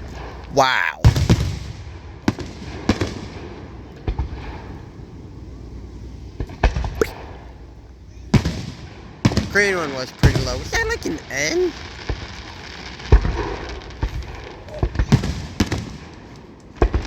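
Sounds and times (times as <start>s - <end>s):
fireworks bangs: 0.0s - 17.0s
low background rumble: 1.2s - 9.3s.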